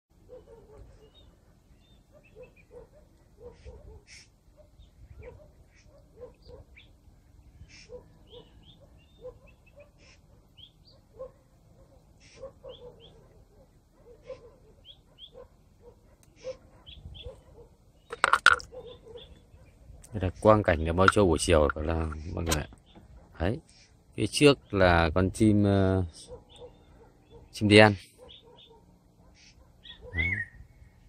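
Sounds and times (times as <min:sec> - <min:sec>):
low-pitched bird calls: 0:00.3 - 0:11.2, 0:16.3 - 0:20.6, 0:26.2 - 0:31.0
birds chirping and whistling: 0:00.9 - 0:02.8, 0:03.5 - 0:11.0, 0:14.2 - 0:15.4, 0:16.3 - 0:20.6, 0:26.4 - 0:28.8, 0:29.4 - 0:31.0.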